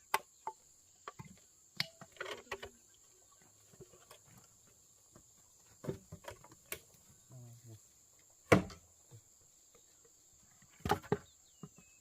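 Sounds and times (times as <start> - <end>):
wood knocking and clattering: 0.1 - 7.0, 8.5 - 8.9, 10.6 - 12.0.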